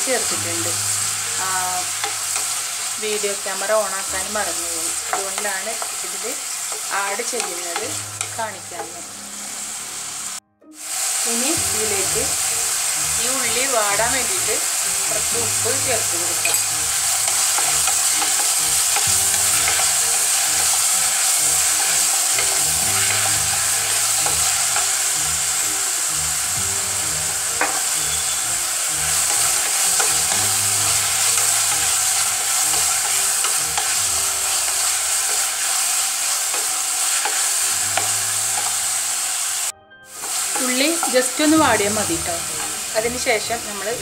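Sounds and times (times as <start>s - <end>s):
vegetables sizzling in hot oil: 0.0s - 44.0s
wooden spatula scraping a pot: 16.4s - 25.0s, 27.7s - 38.7s.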